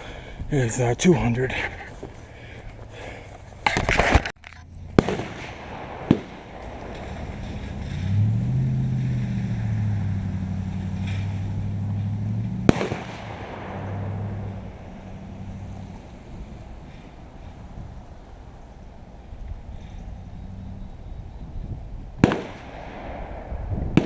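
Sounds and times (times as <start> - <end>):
engine humming: 0.0 - 24.0
gunshots: 5.0 - 7.7, 12.6 - 14.6, 22.2 - 24.0.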